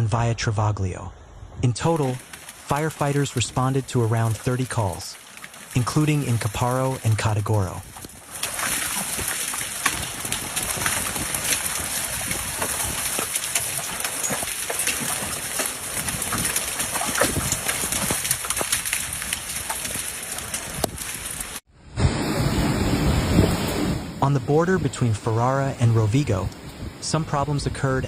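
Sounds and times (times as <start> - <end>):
hailstones pelting hard surfaces: 1.9 - 21.6.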